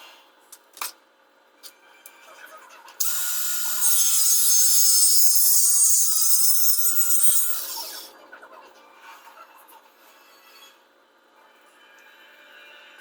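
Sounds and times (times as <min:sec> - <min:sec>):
power saw cutting: 0:03.0 - 0:08.1.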